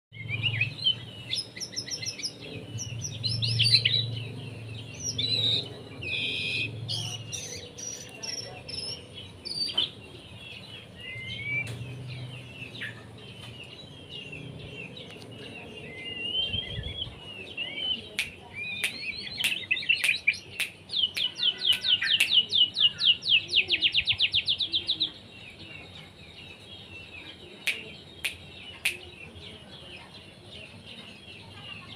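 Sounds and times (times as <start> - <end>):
songbird singing: 0.1 - 31.9
sharp clicks: 18.2 - 22.4.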